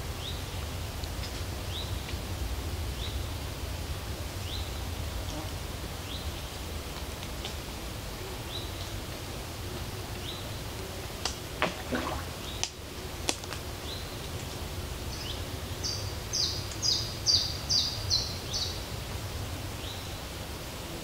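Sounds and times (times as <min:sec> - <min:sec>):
birds singing: 0:15.1 - 0:18.9.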